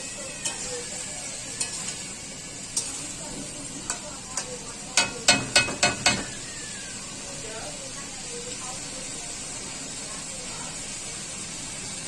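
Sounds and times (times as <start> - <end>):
curry sizzling in a pan: 0.0 - 12.0
spoon knocking against pan: 3.9 - 6.4.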